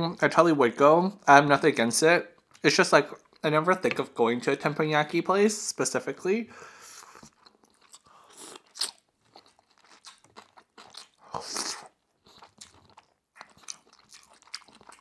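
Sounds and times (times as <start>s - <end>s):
person chewing food: 2.3s - 3.5s, 6.8s - 15.0s.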